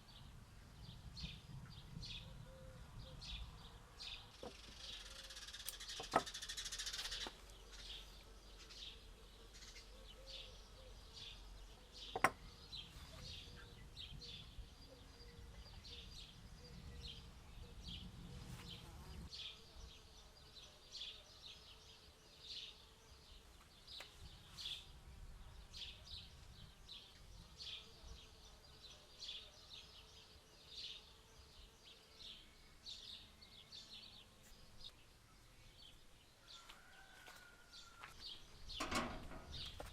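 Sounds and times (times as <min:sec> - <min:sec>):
small bird chirping: 0:01.0 - 0:21.7.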